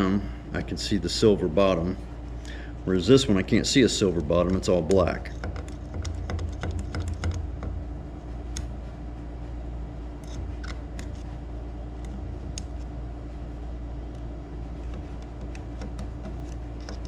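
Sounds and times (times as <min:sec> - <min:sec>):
steady low hum: 0:00.0 - 0:17.0
metal parts clicking and tapping: 0:04.0 - 0:07.8, 0:14.8 - 0:17.0.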